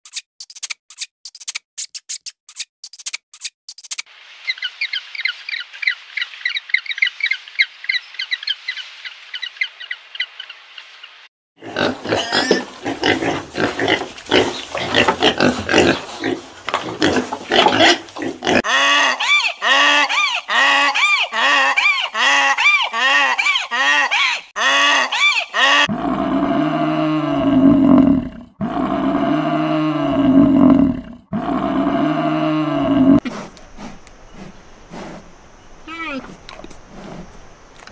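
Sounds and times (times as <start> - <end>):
piglets squealing and grunting: 11.6 - 26.1
donkeys braying: 11.6 - 37.9.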